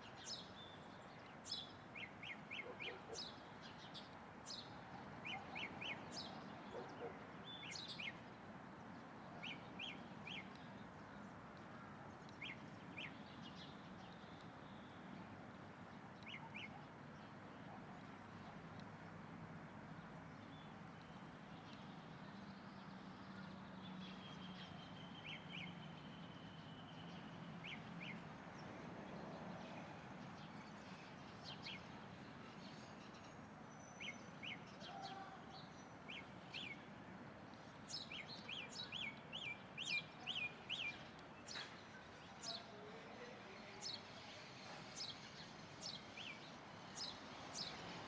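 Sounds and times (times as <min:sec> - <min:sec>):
wild birds chirping: 0:00.0 - 0:15.2, 0:15.9 - 0:18.7, 0:37.5 - 0:48.0.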